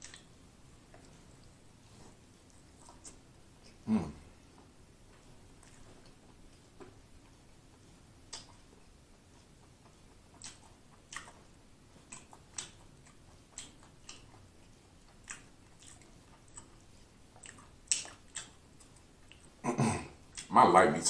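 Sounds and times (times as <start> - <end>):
chewing with mouth clicks: 0.0 - 19.6, 20.2 - 20.5.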